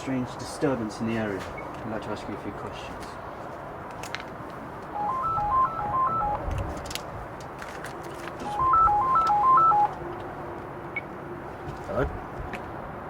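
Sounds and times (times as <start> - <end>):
electronic phone ringtone: 4.9 - 6.5, 8.4 - 10.0.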